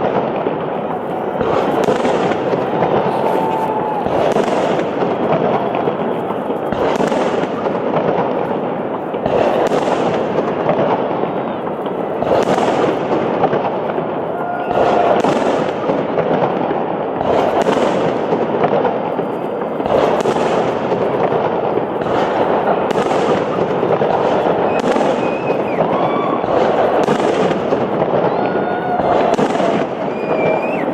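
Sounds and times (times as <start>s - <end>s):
firework bangs: 0.0s - 30.9s
fireworks crackling: 0.0s - 30.9s
faint firework whistles: 0.8s - 7.8s, 22.9s - 30.9s.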